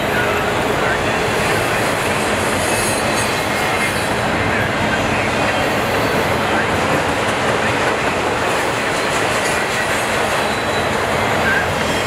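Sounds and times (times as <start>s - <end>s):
steel wheels rolling on rails: 0.0s - 12.0s.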